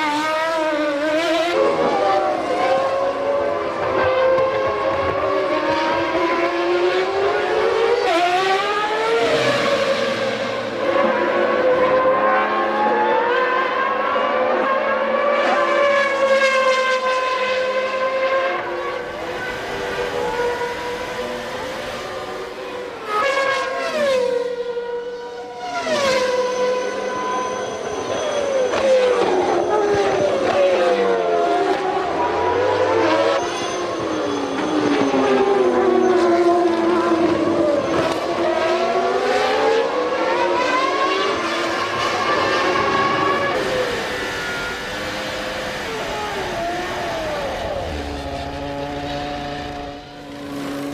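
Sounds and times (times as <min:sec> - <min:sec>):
racing car engines at high revs: 0:00.0 - 0:50.9.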